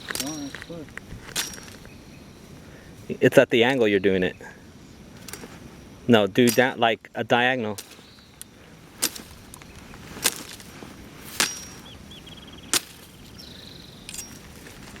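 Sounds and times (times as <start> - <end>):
sharp cracks of striking: 9.0 - 9.4, 12.7 - 13.1.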